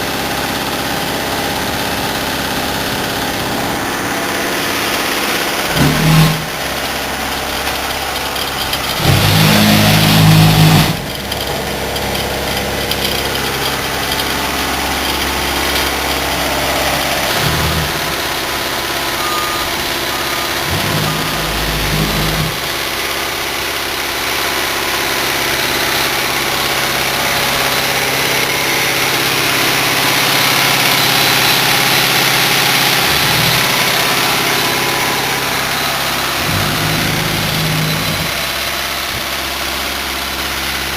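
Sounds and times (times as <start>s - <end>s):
truck diesel engine running: 0.0s - 40.9s
road noise: 2.8s - 23.8s.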